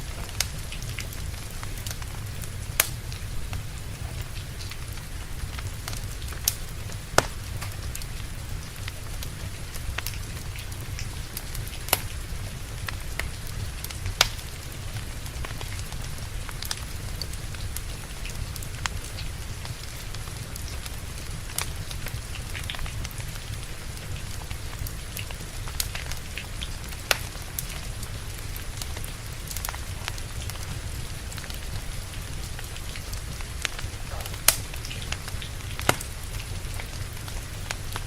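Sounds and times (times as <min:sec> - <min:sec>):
steady rain: 0:00.0 - 0:38.0
wood fire crackling: 0:00.0 - 0:38.0
sharp pops of fire: 0:00.1 - 0:14.8, 0:32.6 - 0:37.9.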